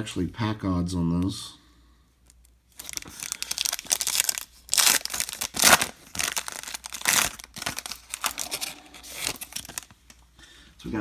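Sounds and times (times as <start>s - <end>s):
card pack wrapper tearing and crinkling: 2.3s - 10.0s.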